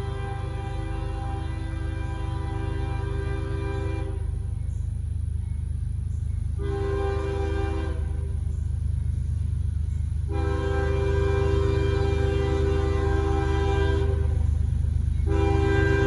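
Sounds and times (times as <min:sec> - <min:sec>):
locomotive air horn blasts: 0:00.0 - 0:04.6, 0:06.6 - 0:08.5, 0:10.2 - 0:16.0
passing train rumble: 0:00.0 - 0:16.0.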